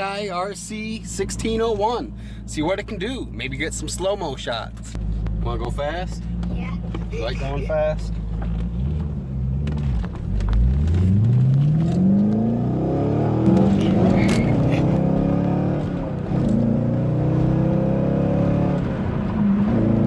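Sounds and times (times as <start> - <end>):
car engine accelerating hard: 4.9 - 20.0.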